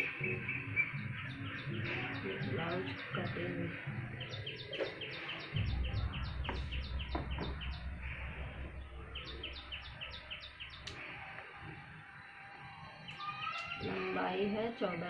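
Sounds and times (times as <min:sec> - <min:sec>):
steady low hum: 0:05.1 - 0:12.2.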